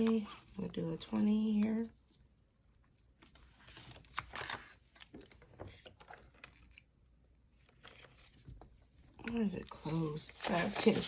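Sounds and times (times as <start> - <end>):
banknotes and envelopes rustling: 7.6 - 11.0.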